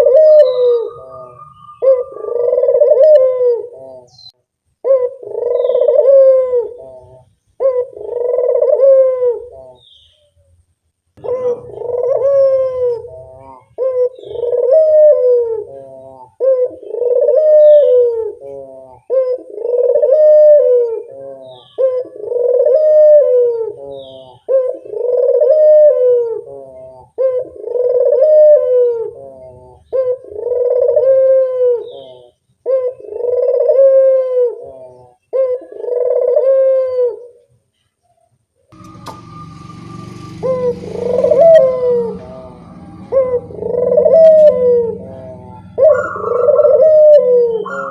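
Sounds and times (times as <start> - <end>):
dove cooing: 0.0 - 9.9, 11.2 - 37.5, 38.8 - 47.9.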